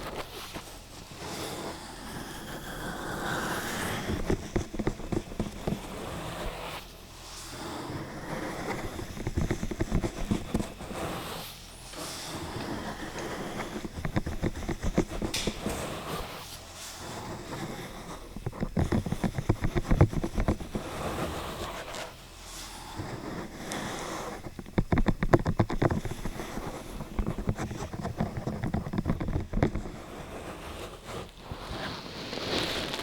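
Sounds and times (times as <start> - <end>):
crackling and tapping on microphone: 3.7 - 6.7, 8.6 - 11.2, 12.6 - 16.4, 17.6 - 22.2, 23.5 - 30.2.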